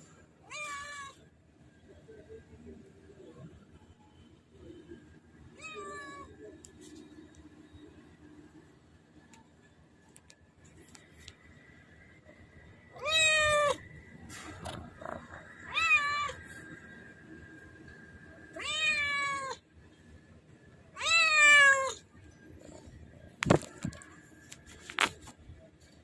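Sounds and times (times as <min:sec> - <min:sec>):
kitten meowing: 0:13.0 - 0:13.8, 0:15.7 - 0:16.4, 0:18.6 - 0:19.6, 0:21.0 - 0:22.0.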